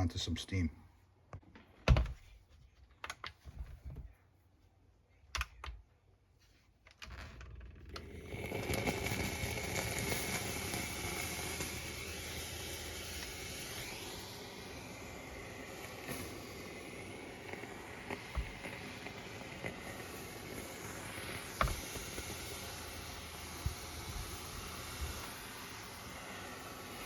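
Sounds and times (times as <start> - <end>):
steamer hissing steam: 8.0 - 27.0.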